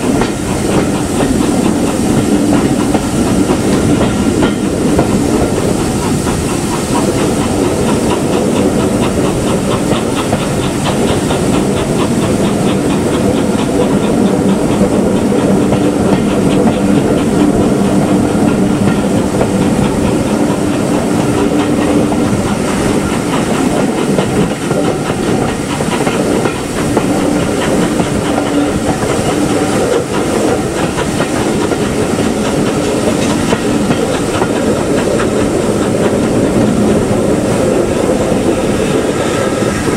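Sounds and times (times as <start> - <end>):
steam hissing: 0.0 - 39.9
steam train running: 0.0 - 39.9
wheels clicking over rail joints: 0.0 - 39.9.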